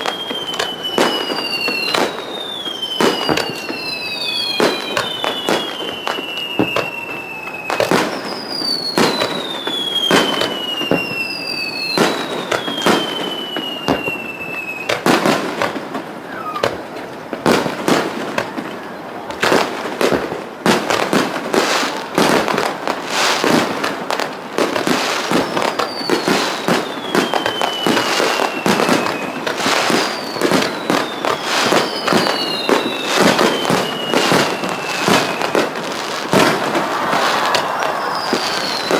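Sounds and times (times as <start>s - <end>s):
firework whistles falling in pitch: 0.0s - 15.4s, 16.2s - 16.9s, 24.6s - 38.9s
crackling firework barrage: 0.0s - 38.9s
firework shells bursting: 24.8s - 38.9s.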